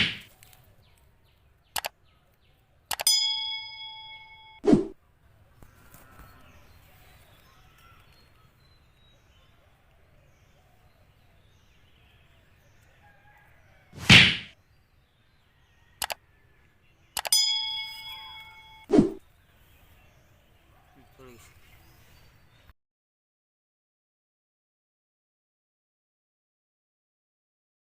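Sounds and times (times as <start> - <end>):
faint background noise: 0.0 - 22.7
ringing bell-like ding: 3.0 - 4.6, 17.2 - 18.9.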